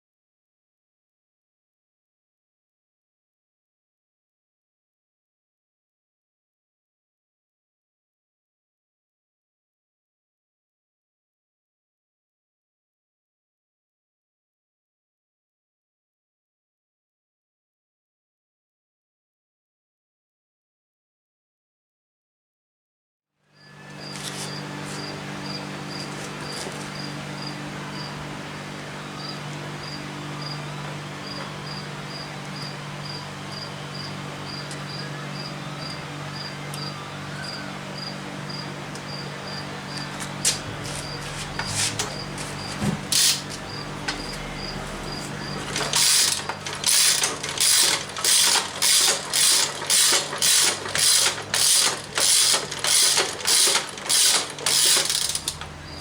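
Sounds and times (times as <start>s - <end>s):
cricket chirping: 24.0s - 28.2s, 29.2s - 40.1s, 42.0s - 48.5s
low steady hum: 39.7s - 47.6s
ratchet wrench strokes: 43.1s - 43.6s, 45.7s - 55.6s.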